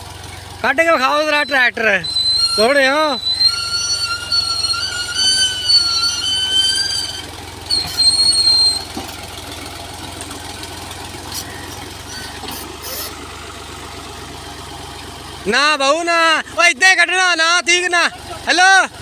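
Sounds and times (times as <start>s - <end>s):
tractor engine running: 0.0s - 19.0s
high-pitched squeal: 1.3s - 9.1s, 11.3s - 13.2s.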